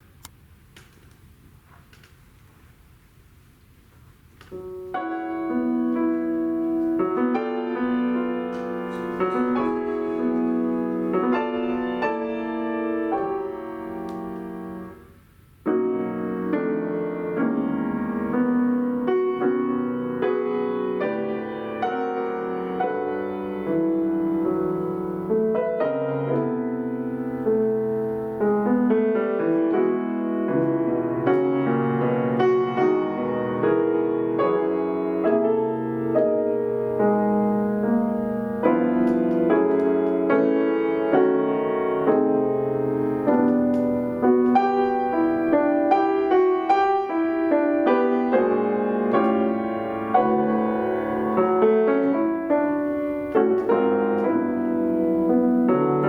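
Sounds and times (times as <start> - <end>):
piano playing sustained chords: 4.6 - 15.1, 15.7 - 56.0.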